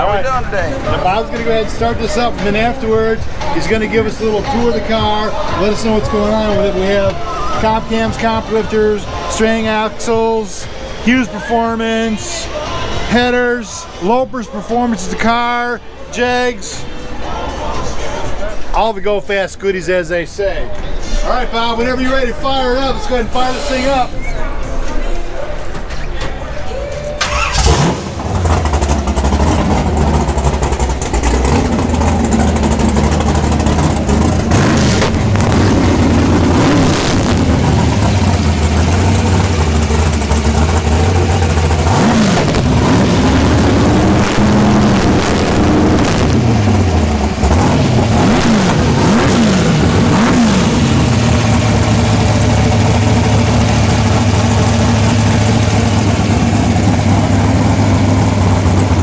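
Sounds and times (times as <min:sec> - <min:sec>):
vee eight engine idling and revving: 0:27.2 - 0:59.0.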